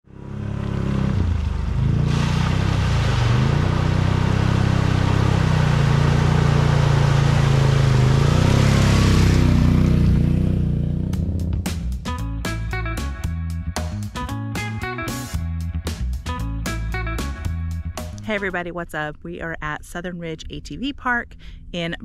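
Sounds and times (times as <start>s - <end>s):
atv engine revving: 0.0s - 12.4s.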